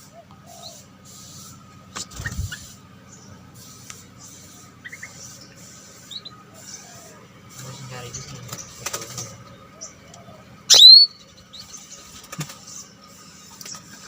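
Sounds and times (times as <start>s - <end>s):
faint bird chirps: 0.0s - 14.0s
bulbul call: 10.7s - 11.1s.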